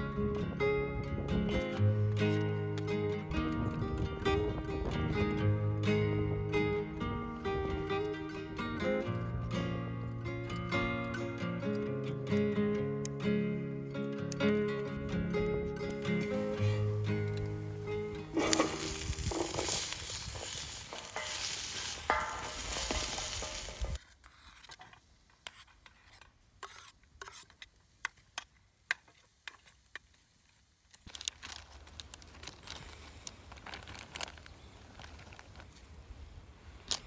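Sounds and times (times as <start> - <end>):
quiet steady hiss: 0.0 - 37.0
faint clicks and crackles: 7.4 - 36.0, 36.8 - 37.0.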